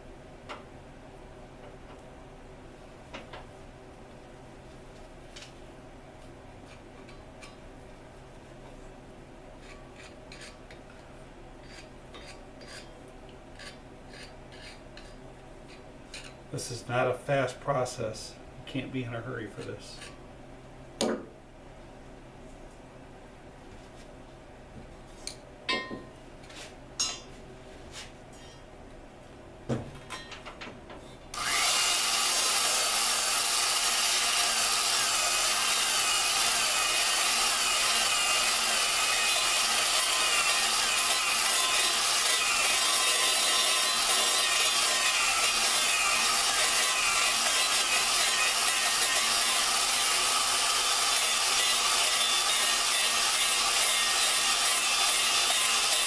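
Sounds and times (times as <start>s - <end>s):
drill grinding valve seat: 31.4s - 56.0s.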